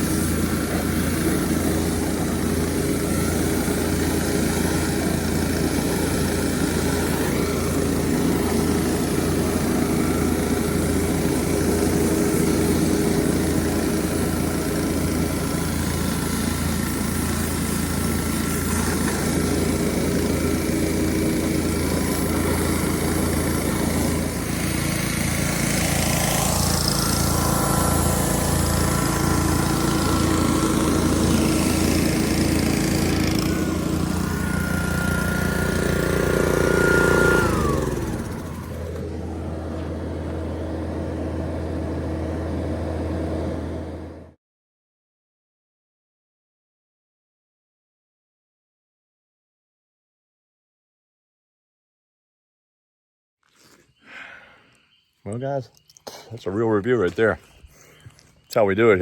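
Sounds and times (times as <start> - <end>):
engine running: 0.0 - 44.4.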